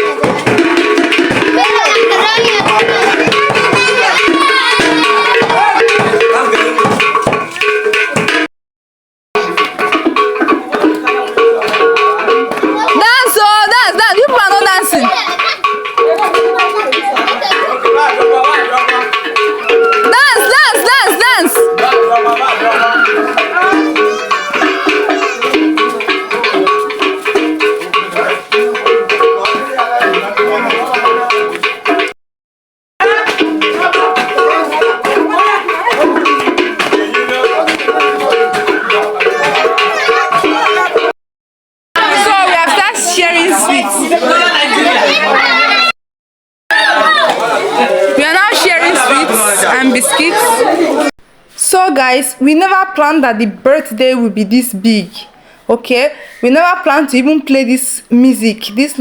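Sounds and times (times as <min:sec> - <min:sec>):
voices: 0:00.0 - 0:08.2, 0:09.4 - 0:32.0, 0:33.0 - 0:41.1, 0:42.0 - 0:46.0, 0:46.7 - 0:59.0
hand drums and percussion: 0:00.0 - 0:08.5, 0:09.4 - 0:32.2, 0:33.0 - 0:41.2, 0:42.0 - 0:45.9, 0:46.7 - 0:55.3
stepping melody: 0:00.0 - 0:08.5, 0:09.4 - 0:32.1, 0:33.0 - 0:41.1.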